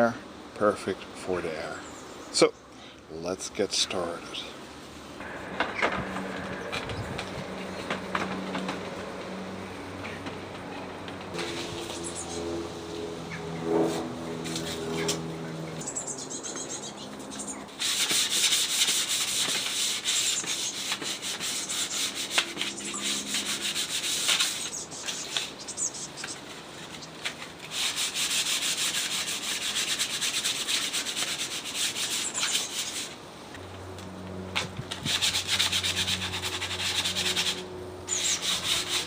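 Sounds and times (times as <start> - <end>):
sandpaper rubbing on wood: 13.7 - 15.3, 17.7 - 33.2, 34.9 - 39.0.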